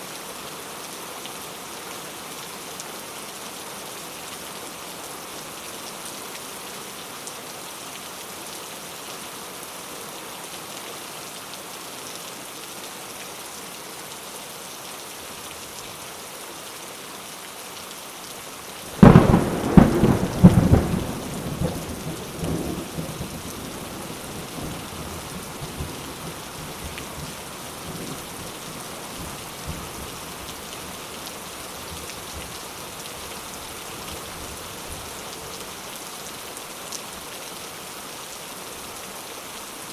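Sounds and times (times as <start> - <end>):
rain on thatched roof: 0.0 - 39.9
thunderclap cracking and rumbling: 19.0 - 23.3.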